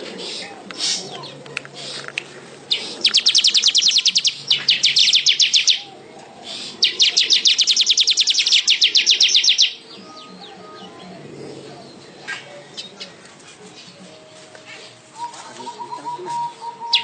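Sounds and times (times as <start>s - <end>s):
weaver bird chattering trills: 2.7s - 5.9s, 6.5s - 11.0s, 15.7s - 17.0s.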